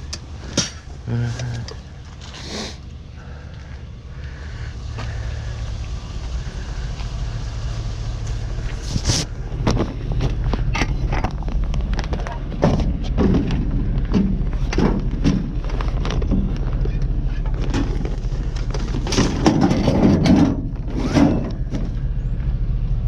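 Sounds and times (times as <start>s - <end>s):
vehicle engine idling: 0.0s - 23.0s
scrap items knocking and clanking: 8.9s - 22.0s.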